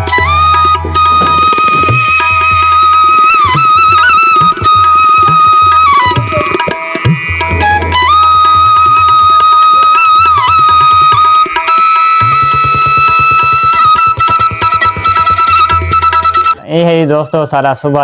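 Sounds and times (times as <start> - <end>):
hand drumming: 0.0 - 16.6
pitch-bending melody: 0.0 - 18.0.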